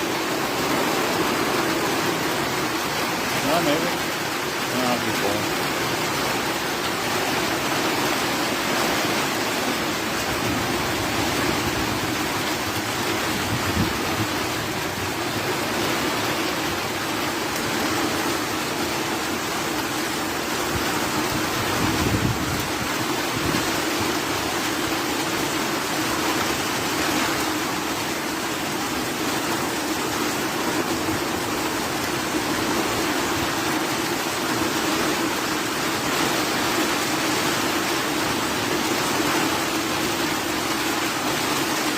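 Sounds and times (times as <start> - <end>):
heavy rain hissing: 0.0 - 41.9.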